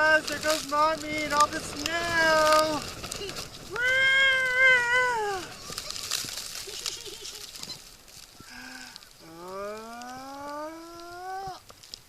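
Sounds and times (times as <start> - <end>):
sleds sliding over snow: 0.0 - 12.0
person shouting whoa: 3.7 - 5.5, 9.6 - 11.6
person squealing: 3.7 - 6.2, 9.2 - 11.6.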